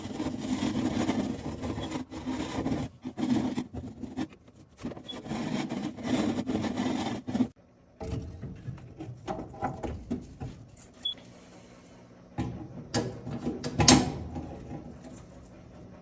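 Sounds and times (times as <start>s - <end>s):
hand scraping seal surface: 0.0s - 7.6s.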